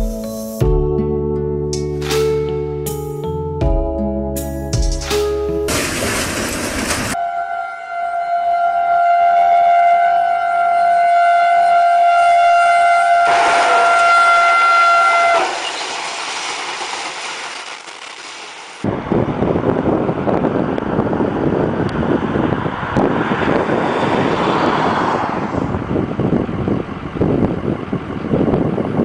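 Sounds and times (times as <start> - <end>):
train ploughing through snow: 5.7 - 7.2, 13.2 - 18.8
train horn chord: 7.2 - 15.6.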